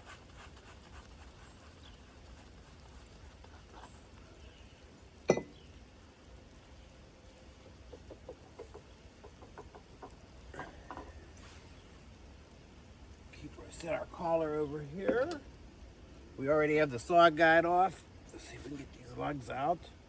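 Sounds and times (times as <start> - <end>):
light metal clicks and clinks: 5.3 - 5.6
sharp metal clank with ring: 5.3 - 5.6.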